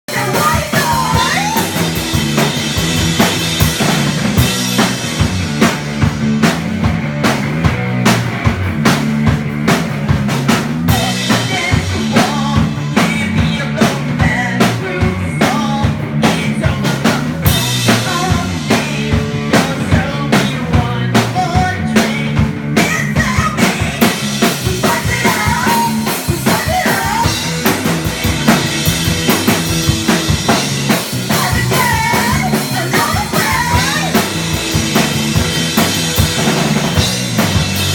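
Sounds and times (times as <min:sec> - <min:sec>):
drum kit rock beat: 0:00.0 - 0:37.9
bass line: 0:00.1 - 0:37.9.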